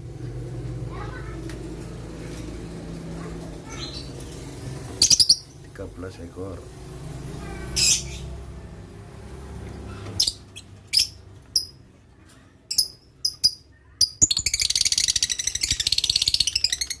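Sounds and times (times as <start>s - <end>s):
lovebirds chirping: 3.6s - 5.8s, 7.5s - 8.4s, 9.8s - 11.8s, 12.6s - 17.0s
shrill bird chattering: 5.0s - 5.6s, 7.7s - 8.4s, 12.7s - 17.0s.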